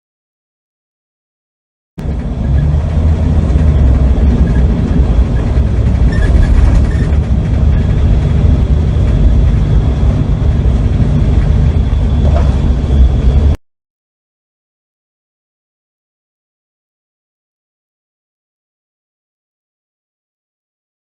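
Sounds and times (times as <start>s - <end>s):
car engine and road noise: 2.0s - 13.6s.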